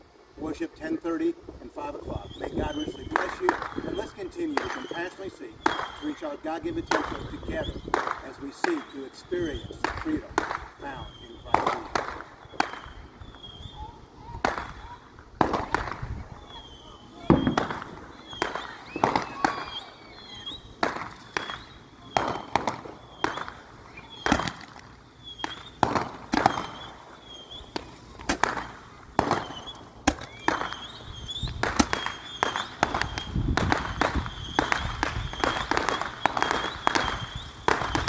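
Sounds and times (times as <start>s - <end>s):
fireworks crackling: 0.0s - 38.0s
fireworks bangs and booms: 1.8s - 38.0s.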